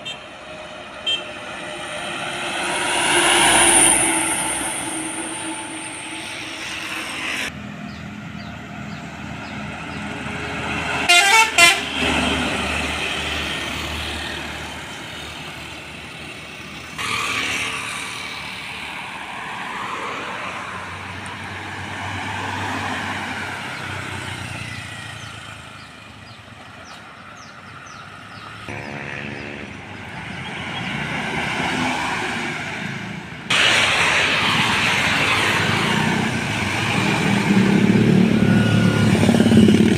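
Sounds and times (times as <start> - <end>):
road traffic with trucks passing: 0.0 - 39.9
vehicle horn: 1.0 - 1.6, 11.0 - 12.1, 28.7 - 30.0.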